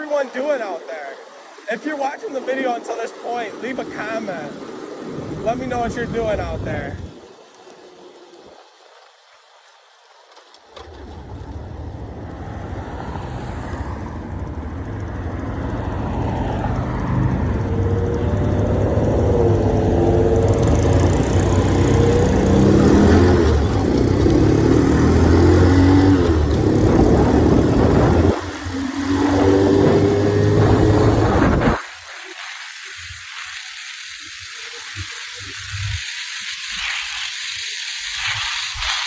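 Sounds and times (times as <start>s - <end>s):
rushing wind: 0.0s - 39.0s
motorcycle engine: 10.7s - 31.9s.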